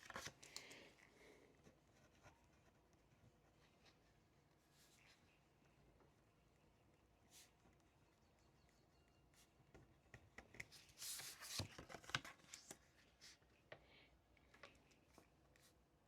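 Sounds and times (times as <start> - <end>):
paper rustle: 0.0 - 1.1, 10.5 - 13.4.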